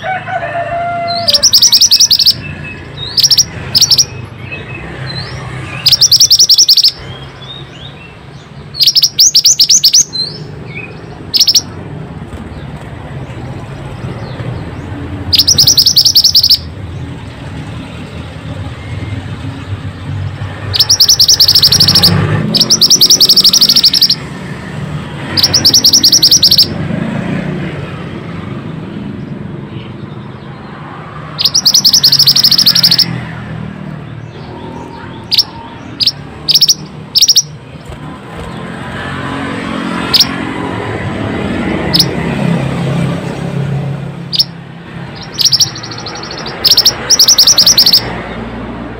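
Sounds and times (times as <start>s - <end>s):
songbird trills and chirps: 1.1s - 11.8s, 13.8s - 16.7s, 20.6s - 24.3s, 25.3s - 26.7s, 31.4s - 33.2s, 34.2s - 38.0s, 41.9s - 42.1s, 44.3s - 48.2s.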